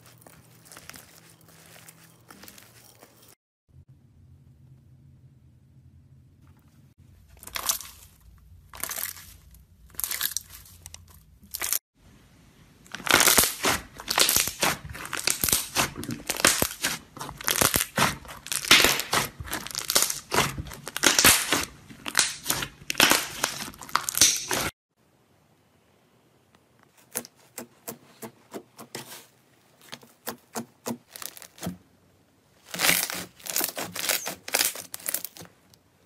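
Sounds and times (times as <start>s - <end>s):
hands squishing slime: 0.0s - 3.0s, 7.3s - 11.8s, 12.9s - 24.7s, 32.6s - 35.6s
slime crackling and popping: 7.4s - 10.8s, 12.9s - 24.7s, 31.0s - 31.8s, 32.6s - 35.6s.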